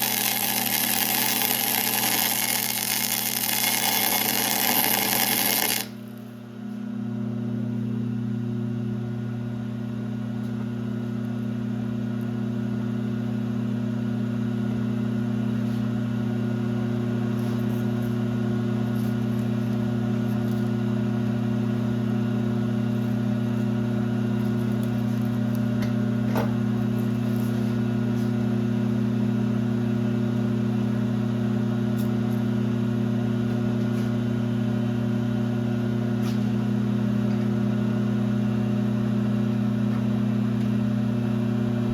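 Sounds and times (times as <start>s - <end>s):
lathe humming: 0.0s - 6.1s.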